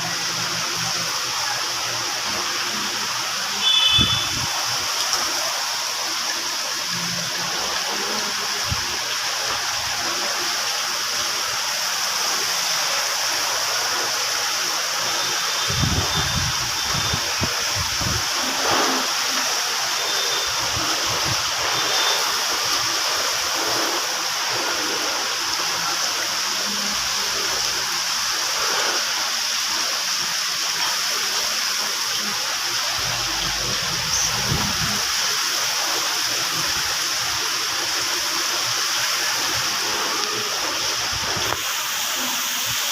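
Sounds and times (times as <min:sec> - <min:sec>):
heavy rain pouring: 0:00.0 - 0:42.9
wind buffeting microphone: 0:15.7 - 0:18.3, 0:33.8 - 0:35.1.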